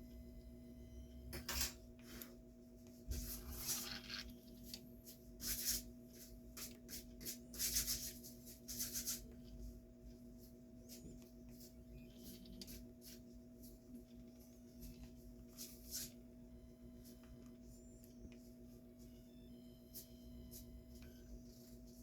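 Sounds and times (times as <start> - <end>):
steady electrical hum: 0.0 - 22.0
rubbing and scraping handling: 3.0 - 16.3.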